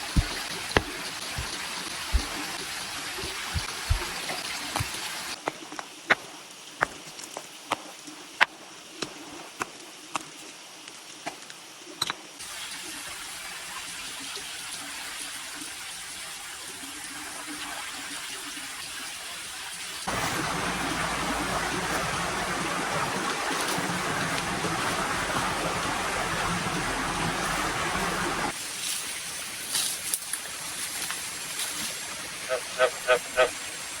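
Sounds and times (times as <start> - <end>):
flowing water rushing: 0.0 - 10.0, 12.4 - 34.0.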